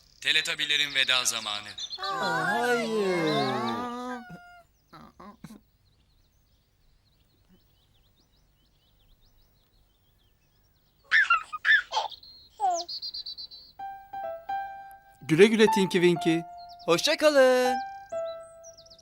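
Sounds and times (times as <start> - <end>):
faint birdsong chirping: 0.0 - 19.0
high-pitched character voices: 2.0 - 4.4.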